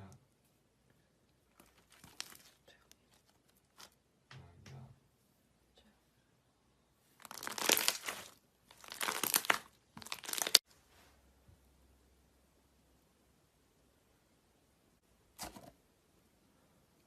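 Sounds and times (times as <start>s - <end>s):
slime squeezed with crackling pops: 7.2s - 10.6s.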